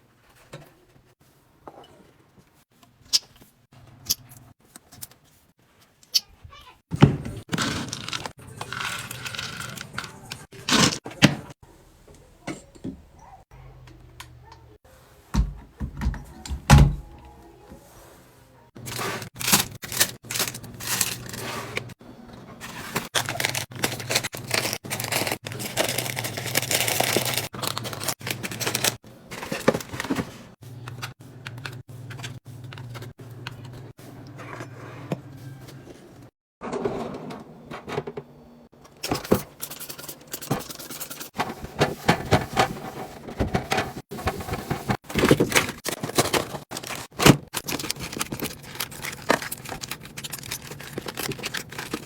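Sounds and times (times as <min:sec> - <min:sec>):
packaging rustling and tearing: 0:18.8 - 0:21.9, 0:22.6 - 0:30.3, 0:43.5 - 0:52.0.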